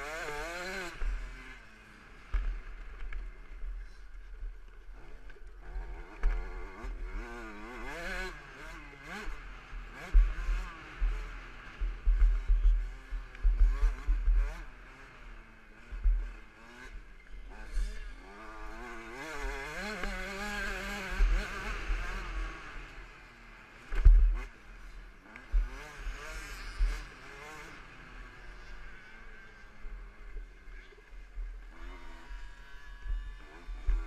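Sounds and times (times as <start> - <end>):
motocross engine revving: 0.0 - 4.0, 4.8 - 34.0
low thumps on microphone: 10.1 - 14.5, 15.9 - 16.3.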